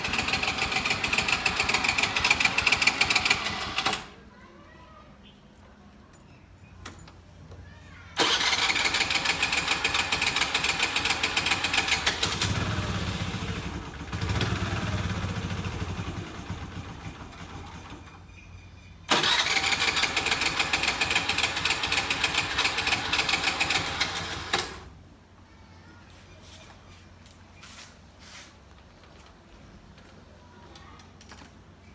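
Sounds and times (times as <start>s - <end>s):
scooter starter cranking: 0.0s - 4.2s, 8.2s - 18.2s, 19.1s - 24.9s.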